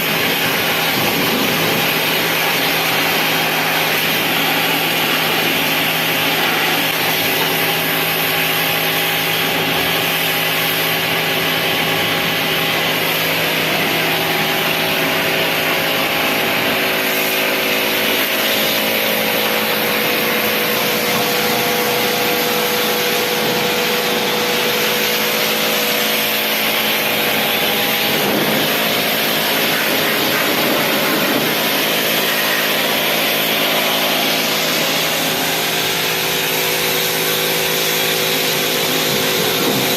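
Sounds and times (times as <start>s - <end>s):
hiss of water spray: 0.0s - 39.9s
pressure washer motor humming: 0.0s - 39.9s.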